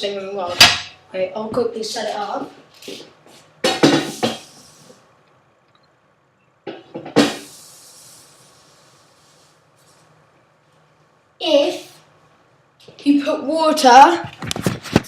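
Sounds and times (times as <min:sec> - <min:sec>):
hiss: 0:04.0 - 0:05.0, 0:07.2 - 0:10.0.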